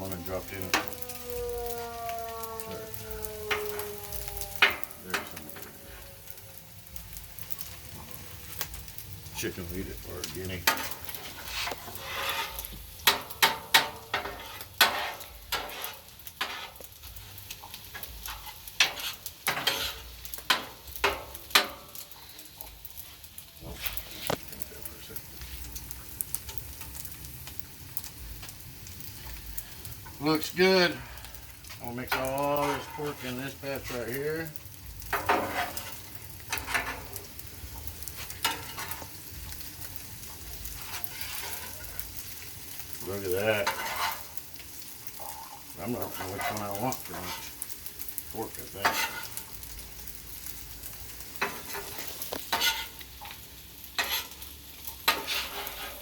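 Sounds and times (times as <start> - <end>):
food sizzling: 0.0 - 56.0
metal utensils scraping on griddle: 0.0 - 56.0
metal spatulas scraping and clacking: 10.6 - 16.9, 18.2 - 21.9, 32.1 - 34.1, 35.1 - 37.1, 38.4 - 39.0, 40.8 - 42.0, 43.6 - 44.4, 46.0 - 47.6, 48.8 - 49.5, 51.4 - 53.0, 54.0 - 54.4, 55.0 - 56.0.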